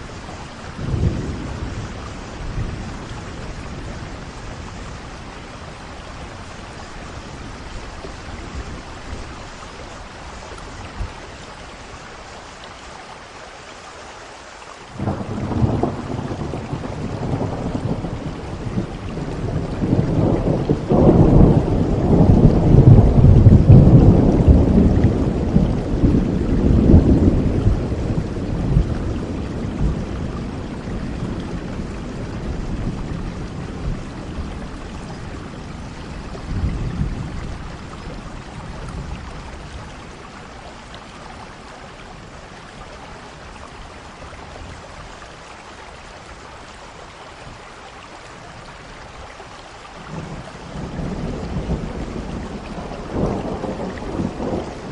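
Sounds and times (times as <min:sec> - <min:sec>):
thunder rumbling: 0:00.0 - 0:11.3, 0:15.0 - 0:42.4, 0:50.0 - 0:54.9
steady rain: 0:00.0 - 0:54.9.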